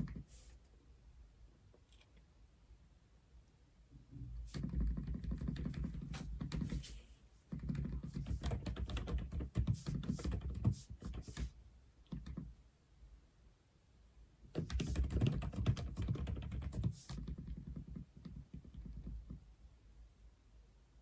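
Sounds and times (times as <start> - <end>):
typing on mechanical keyboard: 4.5 - 6.7, 7.5 - 11.5, 14.6 - 19.4.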